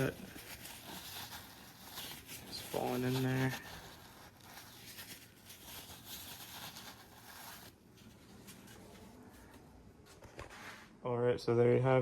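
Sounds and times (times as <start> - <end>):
paper towel scrubbing tire: 0.0 - 9.0.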